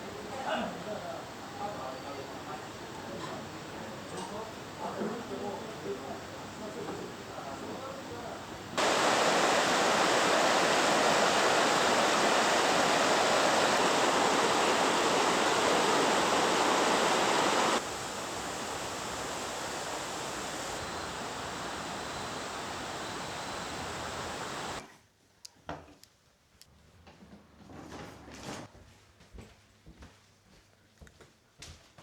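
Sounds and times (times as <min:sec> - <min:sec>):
waterfall rushing: 0:08.8 - 0:24.8.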